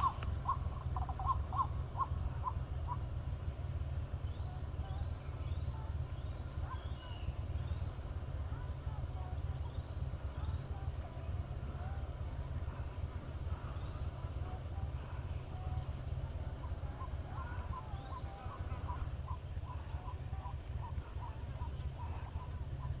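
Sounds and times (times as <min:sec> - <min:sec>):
pulsing insect trill: 0:00.0 - 0:23.0.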